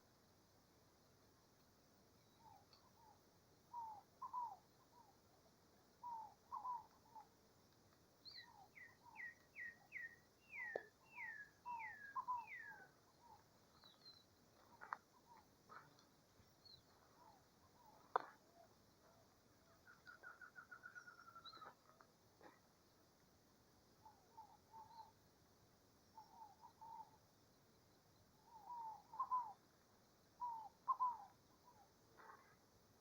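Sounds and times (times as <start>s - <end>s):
birds singing and calling: 8.3s - 18.4s, 19.8s - 21.9s, 26.2s - 27.2s, 28.4s - 29.6s, 30.4s - 32.5s.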